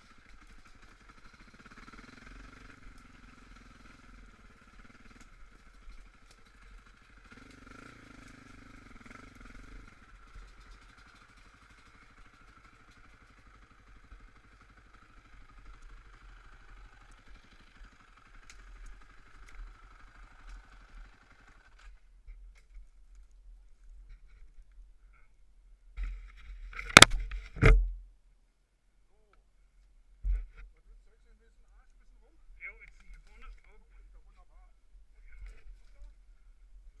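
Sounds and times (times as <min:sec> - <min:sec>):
off-road engine running: 0:00.0 - 0:22.8.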